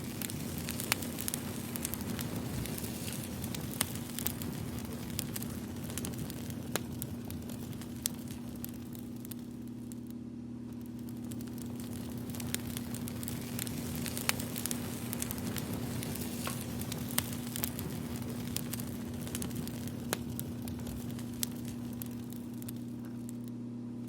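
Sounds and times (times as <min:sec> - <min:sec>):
fire crackling and popping: 0:00.0 - 0:24.0
low steady hum: 0:00.0 - 0:24.0.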